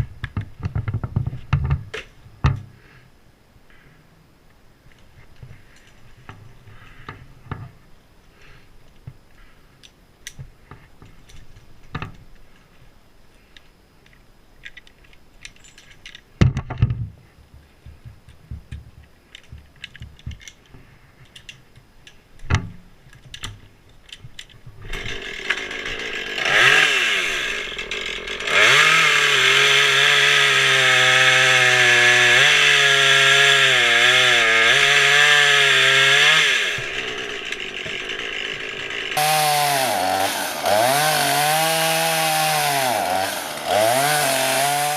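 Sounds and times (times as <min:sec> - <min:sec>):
chainsaw engine revving: 0:24.8 - 0:44.9.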